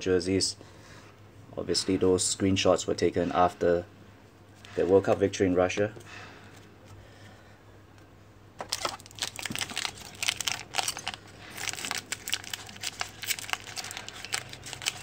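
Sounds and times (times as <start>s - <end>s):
plastic wrapper crinkling: 8.6s - 15.0s.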